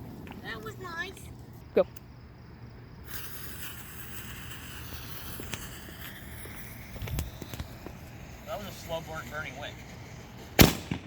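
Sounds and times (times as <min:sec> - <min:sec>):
firework fuse sizzling: 0:02.9 - 0:11.0.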